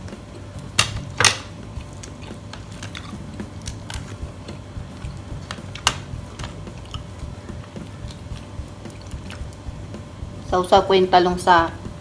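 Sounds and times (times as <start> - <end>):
person chewing with mouth clicks: 4.9 - 9.6.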